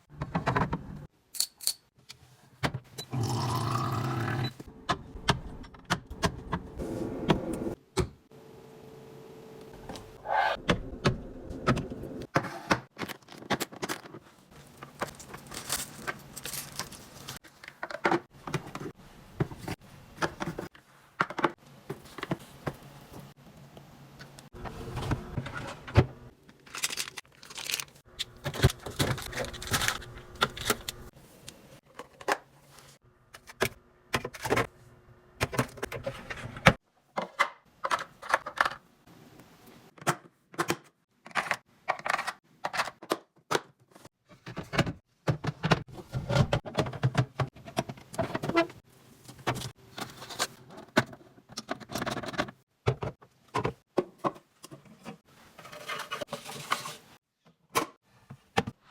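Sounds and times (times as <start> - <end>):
plastic bins being handled: 11.1 - 23.3, 24.2 - 34.7, 40.0 - 58.9.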